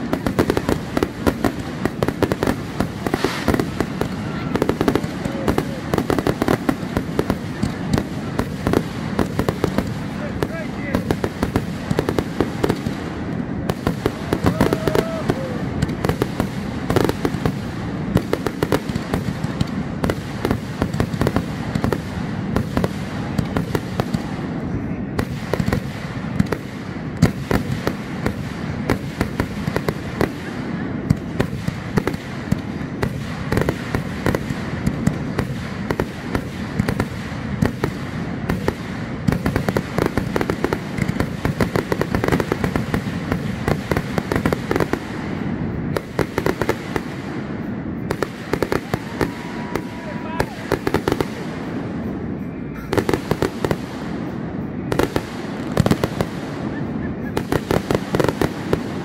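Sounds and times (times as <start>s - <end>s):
fireworks shots and bursts: 0.0s - 59.0s.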